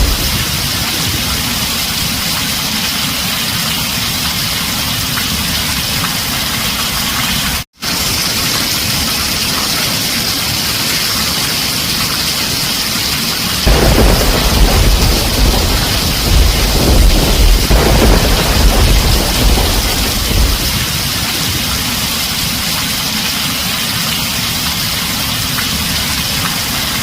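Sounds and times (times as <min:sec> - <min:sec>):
low rumble of thunder: 0:00.0 - 0:02.2, 0:13.7 - 0:22.6
heavy rain on a tin roof: 0:00.0 - 0:27.0.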